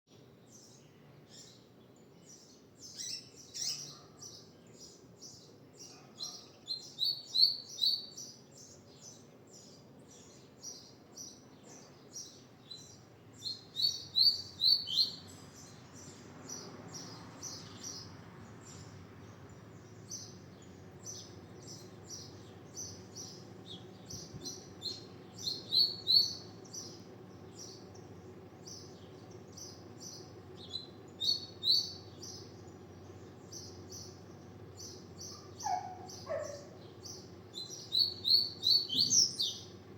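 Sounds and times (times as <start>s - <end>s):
bird singing high chips: 34.9s - 39.7s.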